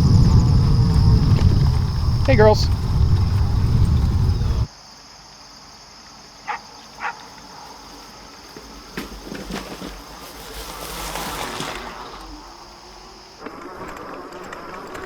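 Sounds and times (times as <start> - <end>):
high-pitched insect drone: 0.0 - 4.7.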